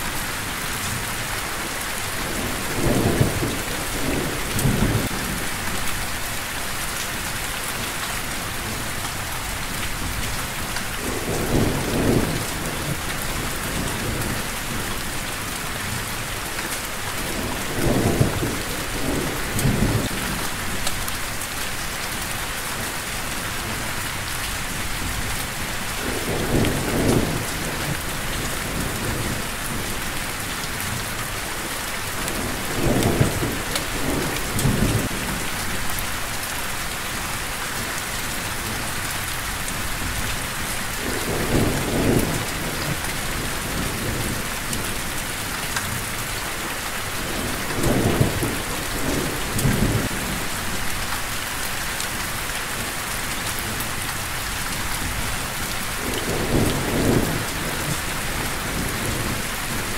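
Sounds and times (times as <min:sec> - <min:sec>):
steady rain falling: 0:00.0 - 0:59.9
thunder rumbling: 0:17.2 - 0:20.8, 0:32.3 - 0:35.9, 0:41.0 - 0:44.9, 0:47.2 - 0:51.1, 0:56.0 - 0:59.9.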